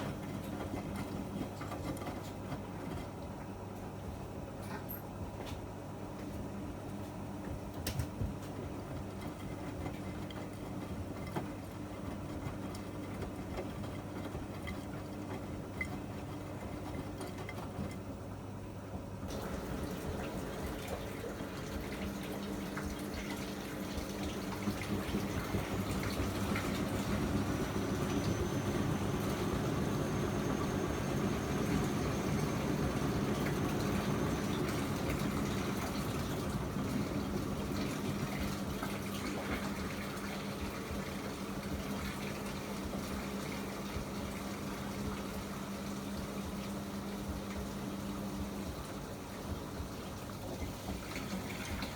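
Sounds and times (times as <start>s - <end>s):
washing machine hum: 0.0s - 51.9s
water rushing into drum: 19.3s - 29.5s.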